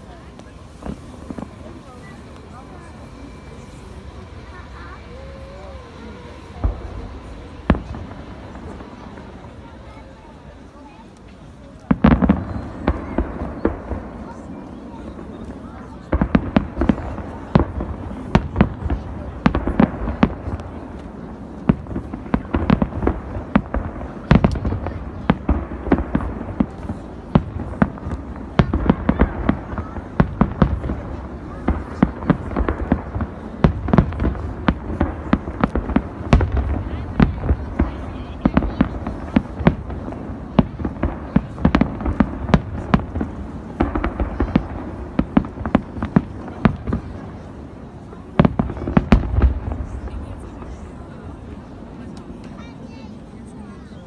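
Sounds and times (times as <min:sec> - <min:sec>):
fireworks bangs: 0:00.0 - 0:53.9.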